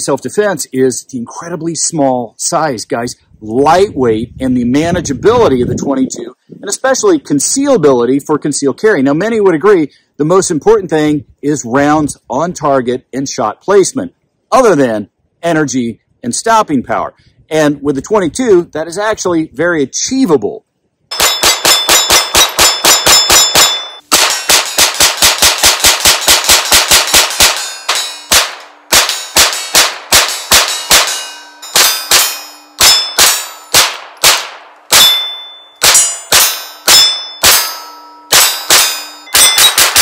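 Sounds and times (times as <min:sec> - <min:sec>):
pistol shots: 0:21.1 - 0:37.7, 0:38.3 - 0:40.0
steel plate ringing: 0:21.1 - 0:40.0.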